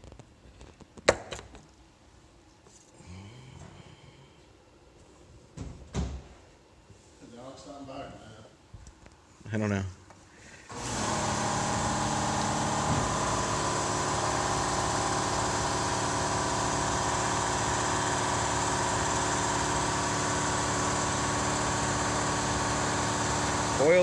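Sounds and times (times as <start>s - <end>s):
engine idling: 10.7s - 24.0s.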